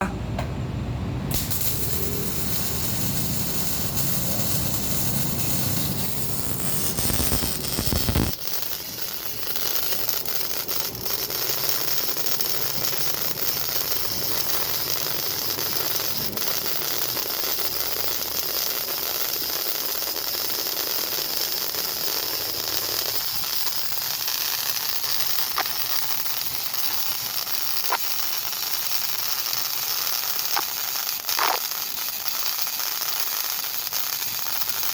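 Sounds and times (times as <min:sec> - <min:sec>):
welding arc crackling and hissing: 0:01.3 - 0:34.9.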